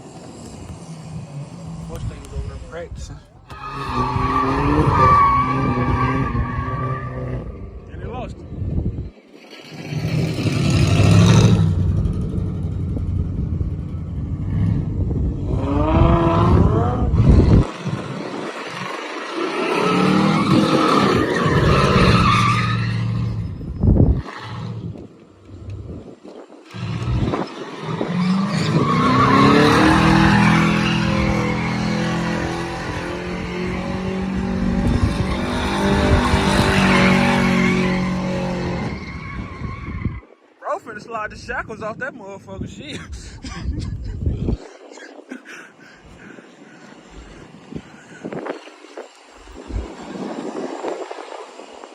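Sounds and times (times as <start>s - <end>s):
tyres squealing on pavement: 3.4s - 7.5s, 18.8s - 24.6s, 26.8s - 32.6s, 35.0s - 40.3s
car engine revving: 26.7s - 39.0s.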